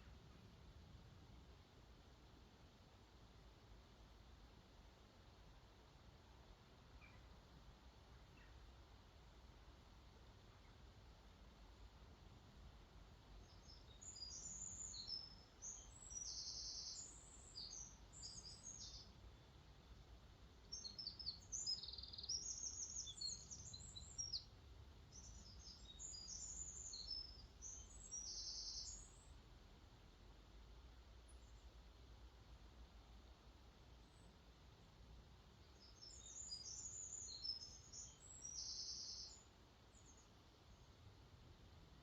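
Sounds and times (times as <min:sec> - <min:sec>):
songbird singing: 0:06.9 - 0:07.5, 0:08.1 - 0:08.9, 0:10.4 - 0:12.0, 0:13.2 - 0:30.3, 0:31.2 - 0:32.1, 0:33.8 - 0:41.1.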